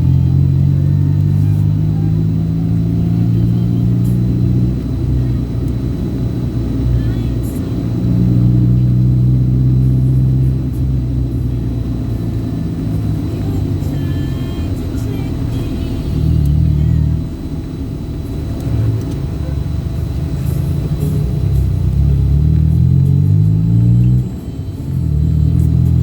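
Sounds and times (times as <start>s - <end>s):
vehicle engine humming: 0.0s - 26.0s.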